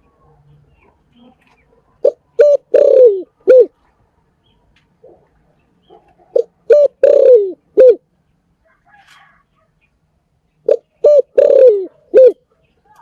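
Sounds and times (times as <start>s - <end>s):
dove cooing: 0.8s - 3.8s, 5.9s - 8.1s, 10.6s - 13.0s.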